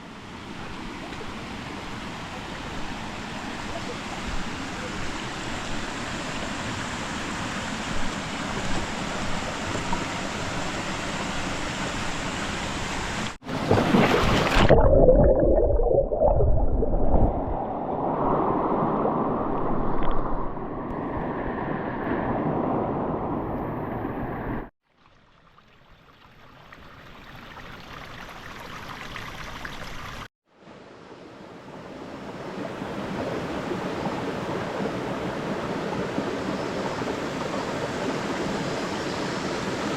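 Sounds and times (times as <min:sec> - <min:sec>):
running water rushing: 0:00.0 - 0:22.4.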